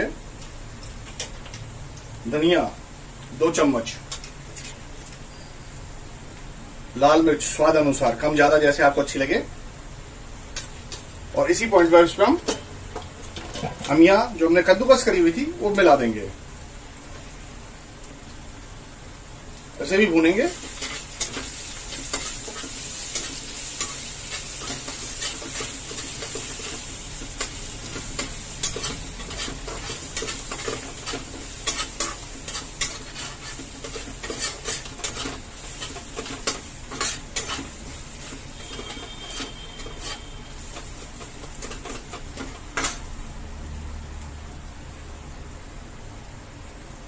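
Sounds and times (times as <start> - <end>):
food sizzling in oil: 0.0 - 43.7
steel spatula scraping pan: 20.6 - 43.0.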